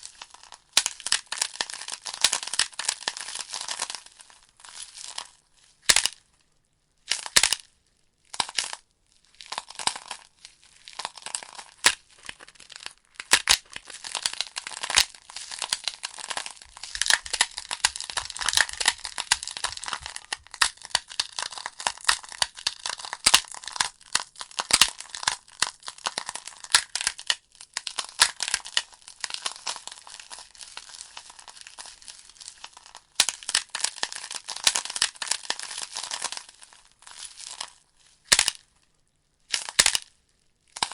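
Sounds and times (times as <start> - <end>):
burning logs crackling: 15.8 - 21.3.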